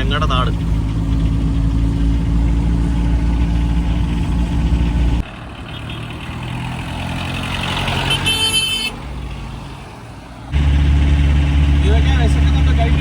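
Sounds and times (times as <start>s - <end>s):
car engine droning: 0.0s - 13.0s
road traffic noise: 0.0s - 13.0s
high-pitched vehicle horn: 8.0s - 9.0s.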